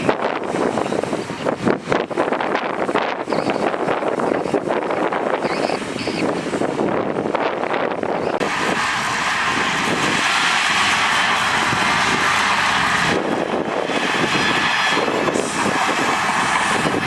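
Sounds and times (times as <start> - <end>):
heavy diesel machine engine: 7.8 - 17.0.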